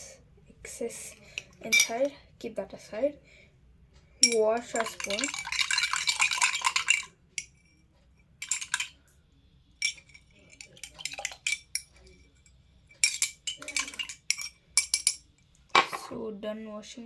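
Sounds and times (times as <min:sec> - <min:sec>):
spoon clinking against glass: 0:01.7 - 0:02.0, 0:04.2 - 0:07.6, 0:08.4 - 0:09.0, 0:09.8 - 0:12.4, 0:13.0 - 0:16.0.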